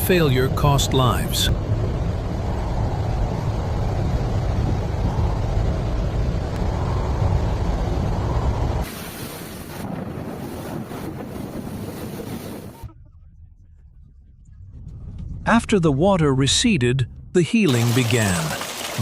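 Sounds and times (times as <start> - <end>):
wind buffeting microphone: 0.1 - 16.1
rushing floodwater: 17.7 - 19.0.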